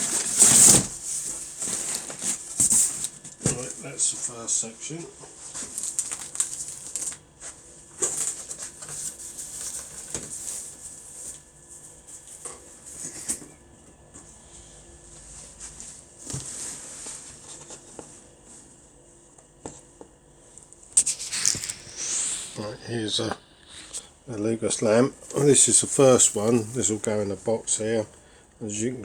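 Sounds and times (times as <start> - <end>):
paper rustling and crinkling: 0.0 - 4.5, 5.2 - 13.6, 21.0 - 24.1, 25.2 - 28.1.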